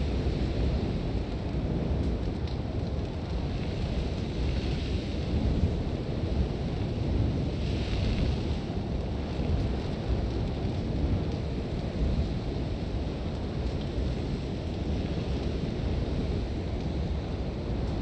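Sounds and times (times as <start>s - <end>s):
wind rumbling: 0.0s - 18.0s.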